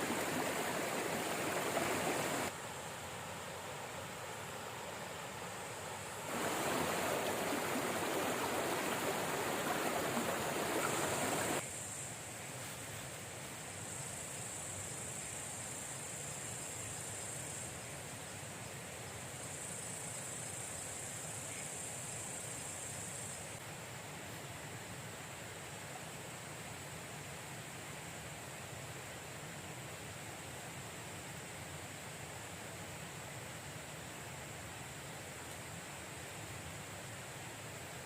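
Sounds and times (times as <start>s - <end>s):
river water rushing: 0.0s - 11.6s.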